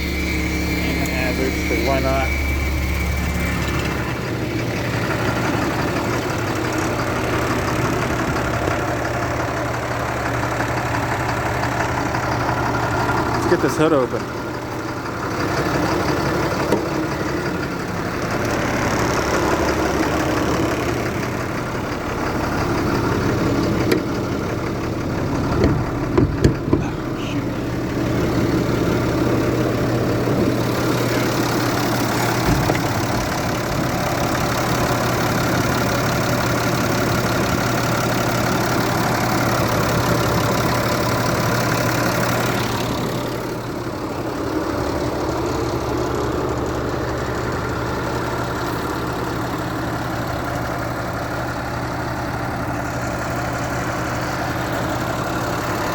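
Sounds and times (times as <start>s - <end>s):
diesel engine idling: 0.0s - 55.9s
loud thumps: 25.4s - 27.3s, 32.0s - 34.3s.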